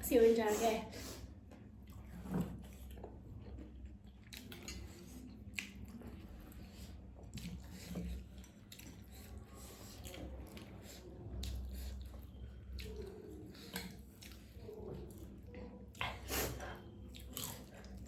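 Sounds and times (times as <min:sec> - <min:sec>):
person chewing noodles: 0:01.4 - 0:18.0.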